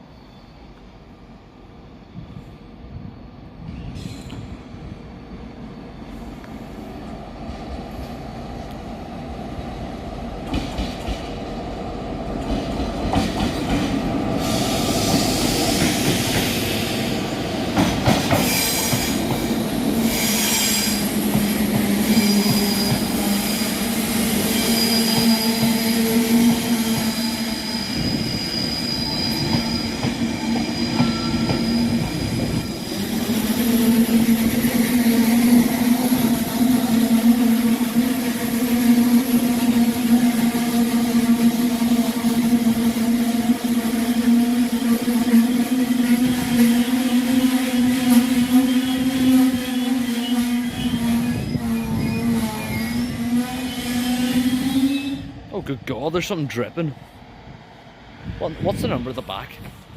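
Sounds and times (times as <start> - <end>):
train wheels squealing: 0.0 - 7.1, 12.5 - 40.4, 44.1 - 55.4.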